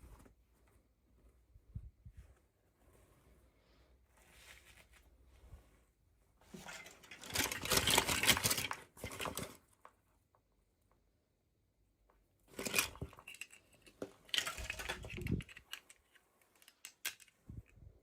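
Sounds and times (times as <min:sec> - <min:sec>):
toy packaging crinkling and tearing: 0:06.8 - 0:09.7, 0:12.5 - 0:17.4.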